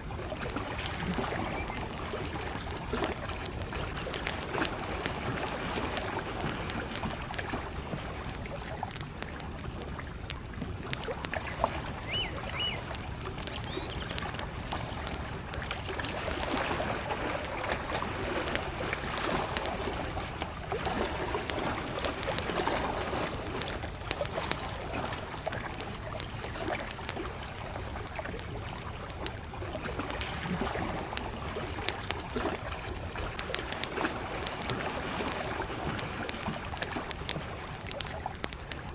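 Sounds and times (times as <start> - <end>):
campfire crackling and popping: 0.0 - 38.9
small waves lapping: 0.0 - 38.9
bird chirping: 1.3 - 2.2, 3.8 - 5.0, 8.0 - 8.7, 12.0 - 14.5, 15.7 - 17.0.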